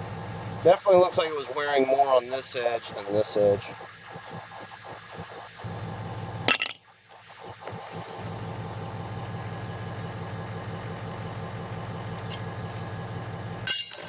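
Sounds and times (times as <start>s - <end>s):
engine idling: 0.0s - 4.4s, 5.1s - 14.0s
sharp metallic clank: 13.6s - 14.0s.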